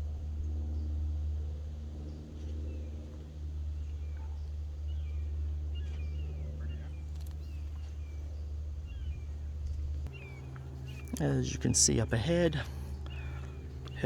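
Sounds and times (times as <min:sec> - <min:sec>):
birds chirping: 0:03.7 - 0:14.0.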